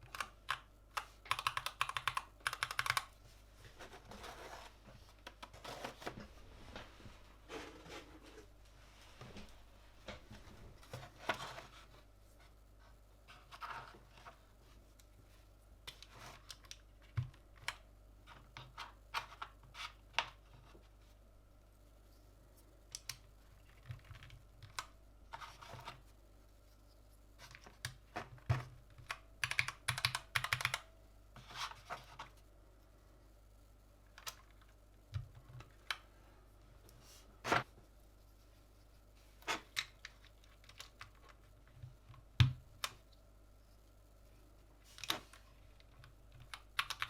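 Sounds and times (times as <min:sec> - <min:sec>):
mechanical keyboard keystrokes: 0:00.0 - 0:03.1, 0:29.0 - 0:30.8, 0:46.4 - 0:47.0.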